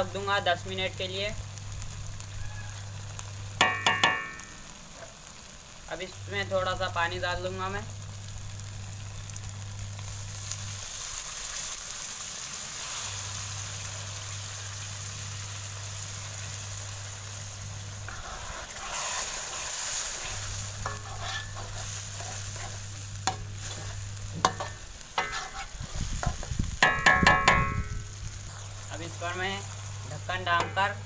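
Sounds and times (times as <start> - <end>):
gravy sizzling in a pan: 0.0 - 31.0
spatula knocking against pan: 3.6 - 4.4, 26.2 - 27.9.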